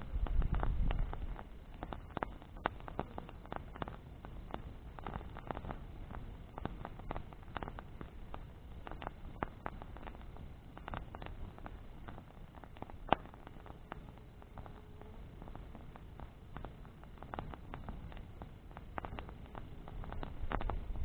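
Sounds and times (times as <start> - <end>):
low rumble of flames: 0.0 - 21.0
wood crackling and popping: 0.0 - 21.0.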